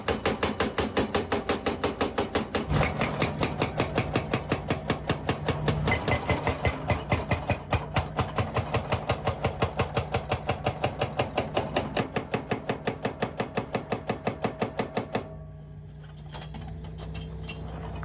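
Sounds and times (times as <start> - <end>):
rock breaker hammering on rock: 0.0 - 15.3
engine running: 2.7 - 8.8, 15.6 - 18.0.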